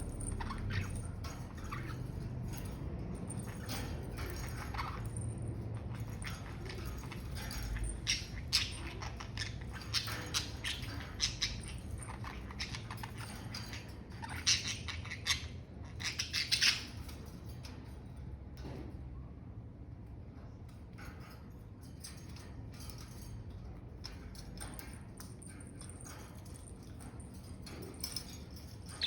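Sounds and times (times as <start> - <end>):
budgerigars chirping and squawking: 0.0 - 5.2, 5.8 - 17.3
faint low hum: 0.0 - 29.0.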